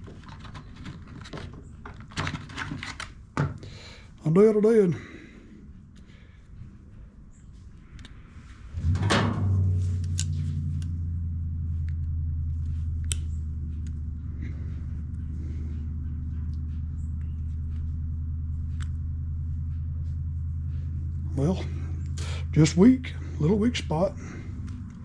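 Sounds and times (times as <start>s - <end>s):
low mechanical hum: 0.0s - 25.0s
light clicks: 11.8s - 14.1s.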